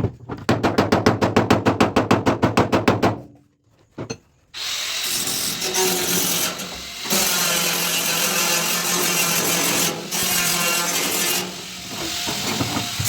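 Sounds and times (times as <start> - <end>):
fast sharp tool strokes: 4.6 - 13.0
noisy power tool running: 4.6 - 13.0.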